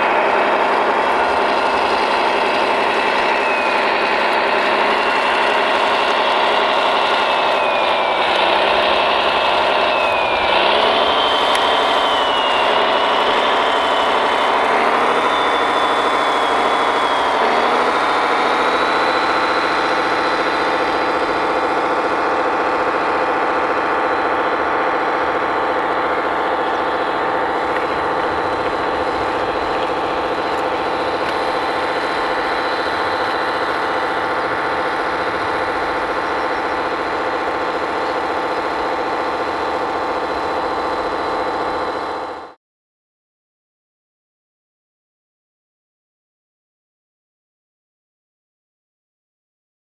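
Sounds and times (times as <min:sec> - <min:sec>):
engine-like hum: 0:00.0 - 0:42.6
high hydraulic whine: 0:00.0 - 0:42.6.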